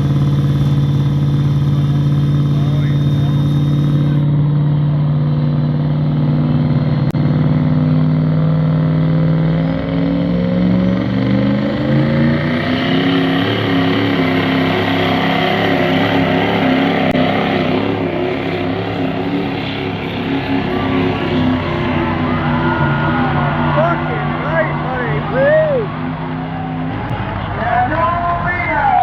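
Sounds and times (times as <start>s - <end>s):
truck engine running hard: 0.0s - 29.0s.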